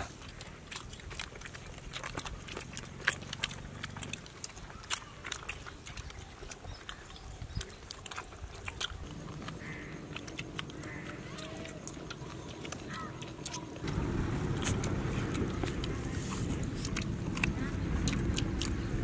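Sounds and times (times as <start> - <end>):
people chewing chicken on bone: 0.0 - 19.0.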